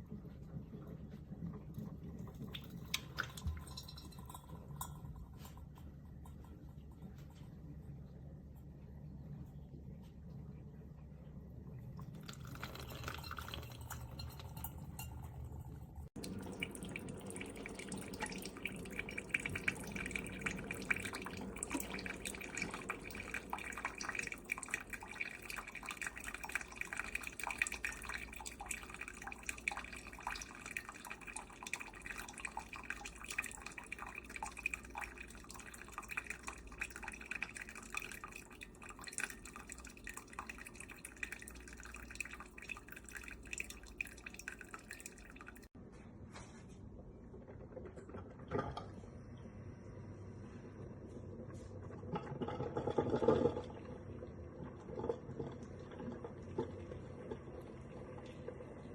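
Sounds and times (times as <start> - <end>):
coffee maker dripping: 1.7 - 7.4, 11.9 - 45.8, 52.1 - 58.9.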